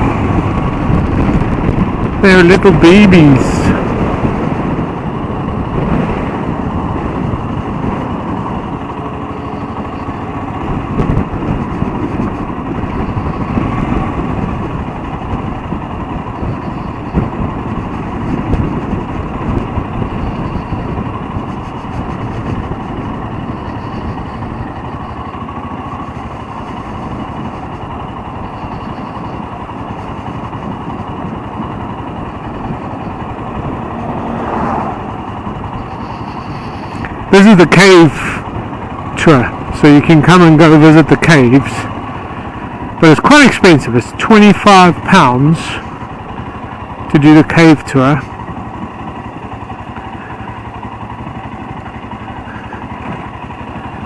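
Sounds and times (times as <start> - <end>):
motorcycle engine running: 0.0 - 54.0
wind rushing on microphone: 0.0 - 54.0.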